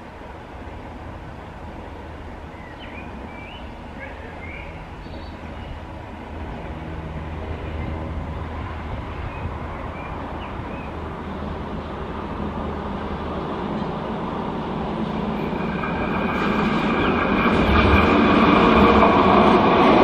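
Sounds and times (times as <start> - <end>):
approaching train rumble: 0.0 - 20.0
birds chirping: 2.5 - 5.9, 9.1 - 11.4.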